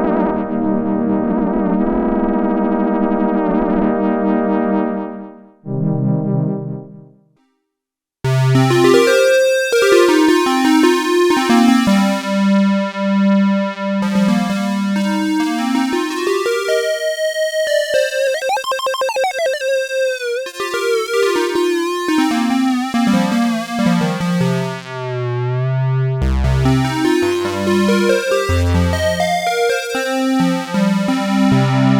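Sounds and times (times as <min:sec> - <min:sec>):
synthesizer melody: 0:14.0 - 0:31.9.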